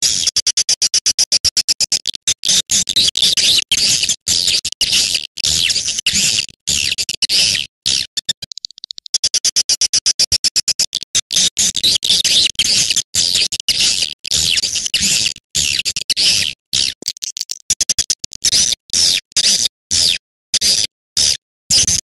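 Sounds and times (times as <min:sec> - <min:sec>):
buzzy bird chirps: 0:02.5 - 0:17.7.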